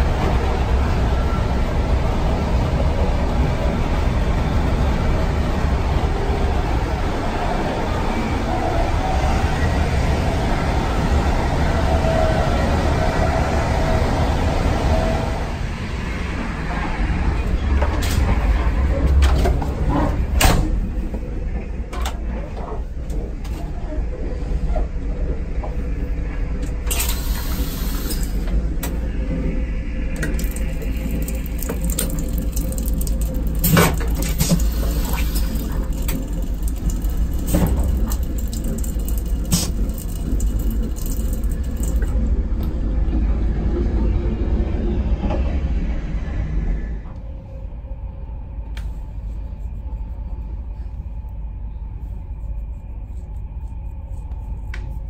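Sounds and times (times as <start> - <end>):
train coach rumble: 0.0 - 52.3
tap running into steel basin: 30.2 - 42.2.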